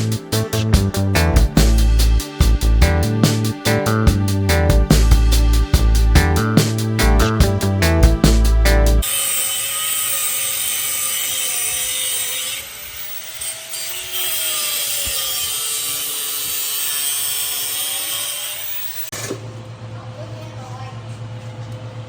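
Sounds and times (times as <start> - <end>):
power tool cutting metal tubing: 9.0 - 19.1.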